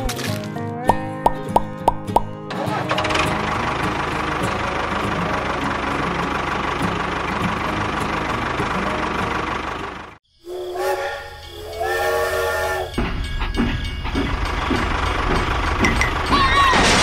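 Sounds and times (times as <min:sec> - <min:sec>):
tractor engine running: 0:01.3 - 0:10.2, 0:12.9 - 0:17.0
train rumbling: 0:02.6 - 0:17.0
steam locomotive whistle: 0:10.4 - 0:13.0.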